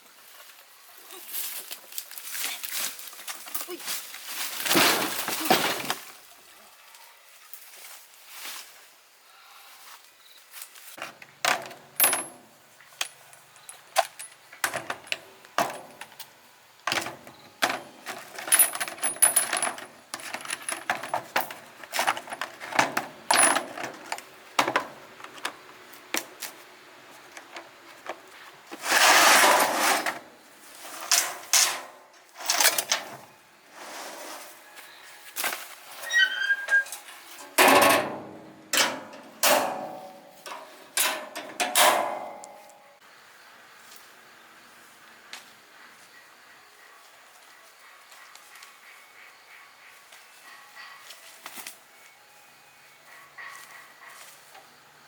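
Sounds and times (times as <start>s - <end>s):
metal parts and tools clinking: 11.0s - 26.3s, 31.0s - 33.3s, 36.0s - 42.9s.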